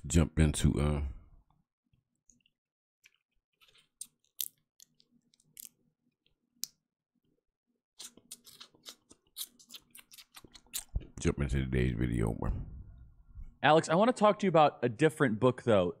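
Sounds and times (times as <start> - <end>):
sunflower seeds cracked and chewed: 2.3 - 5.8.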